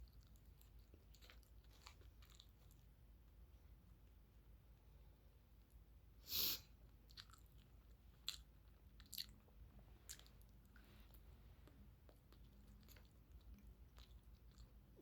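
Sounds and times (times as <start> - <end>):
person chewing: 0.0 - 2.9, 6.9 - 14.8.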